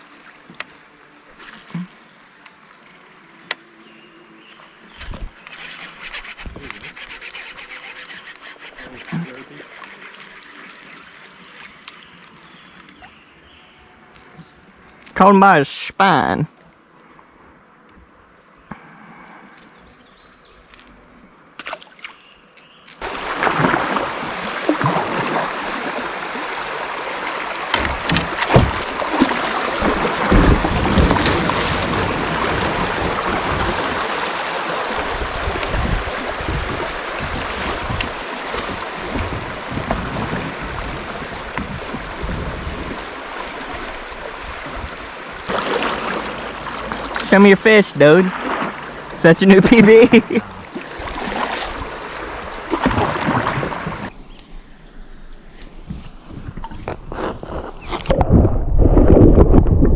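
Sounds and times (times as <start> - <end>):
water sloshing against kayak: 23.0 - 54.2.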